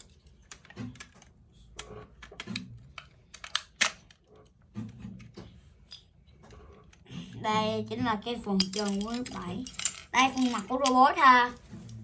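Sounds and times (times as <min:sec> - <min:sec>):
plastic toy parts clicking: 0:00.0 - 0:04.5, 0:08.6 - 0:11.2.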